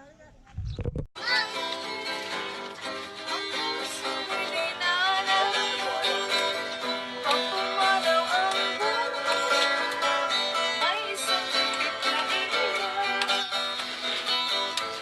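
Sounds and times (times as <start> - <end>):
lively plucked string music: 1.2 - 15.0.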